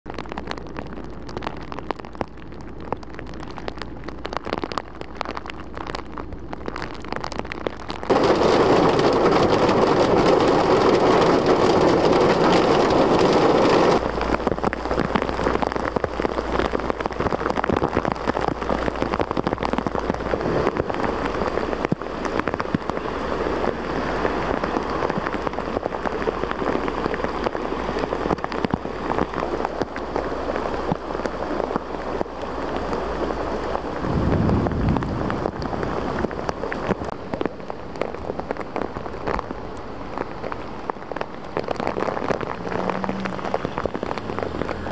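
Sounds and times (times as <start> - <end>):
heavy rain pouring: 0.1 - 44.9.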